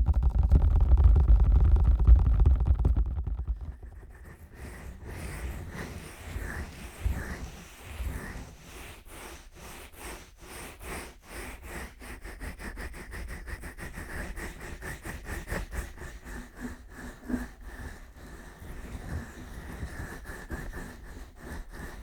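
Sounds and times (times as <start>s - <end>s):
fingers rubbing microphone ears: 0.1s - 9.2s.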